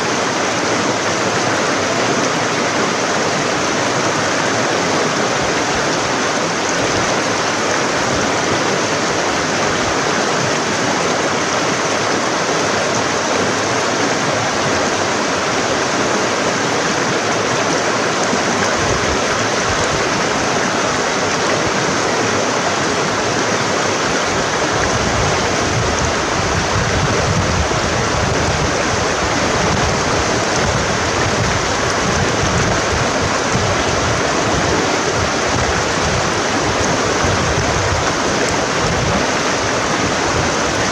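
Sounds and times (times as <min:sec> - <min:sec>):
stream flowing over rocks: 0:00.0 - 0:40.9.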